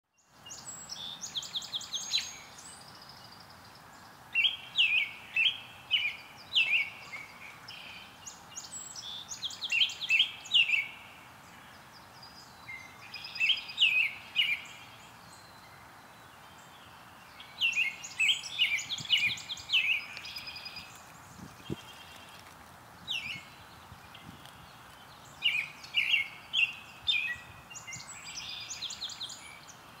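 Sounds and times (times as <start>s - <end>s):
faint outdoor hiss: 0.1s - 30.0s
songbird chirping: 0.1s - 30.0s.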